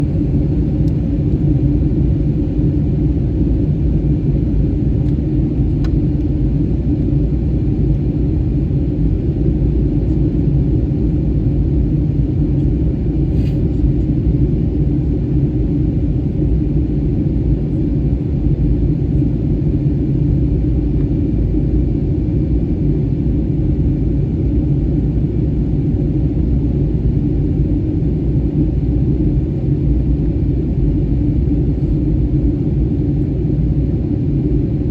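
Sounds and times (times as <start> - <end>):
airliner cabin engine rumble: 0.0 - 34.9.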